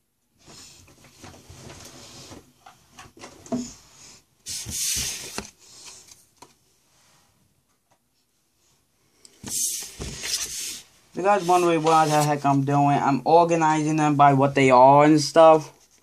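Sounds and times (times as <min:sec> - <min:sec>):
trading cards rustling and sliding: 0:04.5 - 0:06.5, 0:09.4 - 0:12.6.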